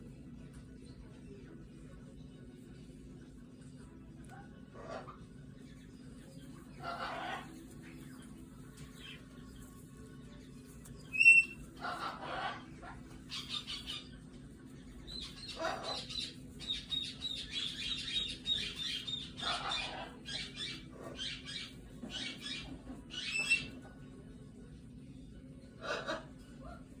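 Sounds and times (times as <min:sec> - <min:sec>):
cockatoo calling: 0:06.6 - 0:08.3, 0:11.1 - 0:14.3, 0:15.0 - 0:23.8, 0:25.8 - 0:26.9.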